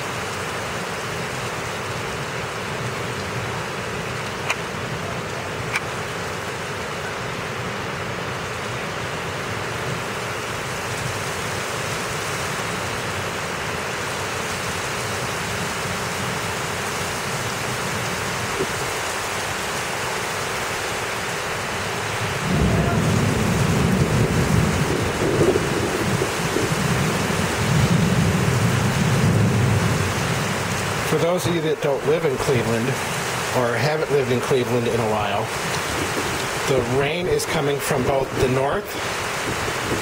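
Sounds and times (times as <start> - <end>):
heavy rain falling: 0.0 - 40.0
loud low rumbling: 22.2 - 30.2.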